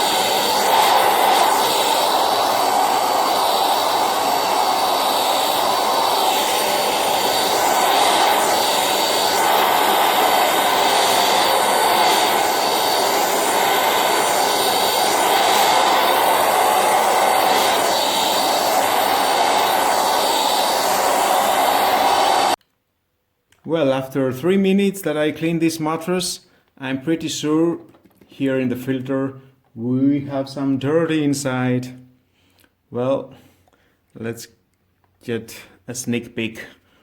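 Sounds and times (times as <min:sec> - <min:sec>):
handheld vacuum whining: 0:00.0 - 0:22.6.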